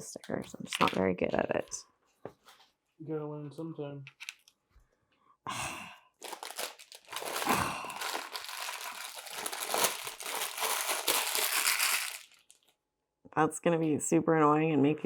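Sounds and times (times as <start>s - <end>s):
packaging crinkling: 6.2s - 12.7s.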